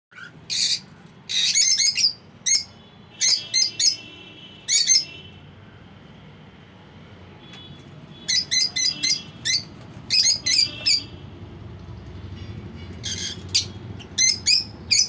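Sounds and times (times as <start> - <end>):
lovebirds chirping: 0.1 - 5.3, 8.2 - 11.2, 12.9 - 15.0.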